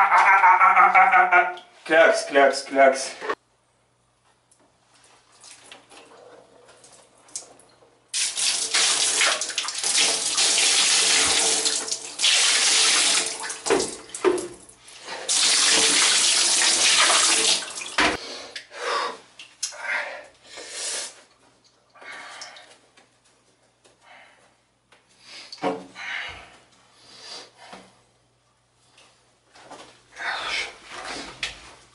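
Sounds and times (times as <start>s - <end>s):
water running from a tap: 8.2s - 18.2s.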